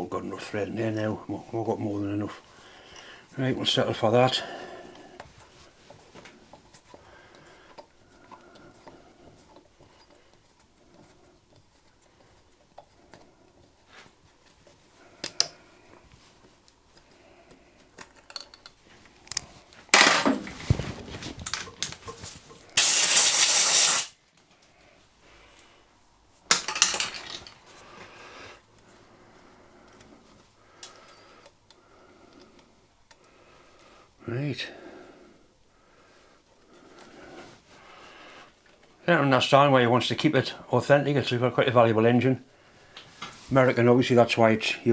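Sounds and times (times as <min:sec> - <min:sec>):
bursts of hiss: 0:22.8 - 0:24.2
hand tools clinking on workbench: 0:26.5 - 0:27.6.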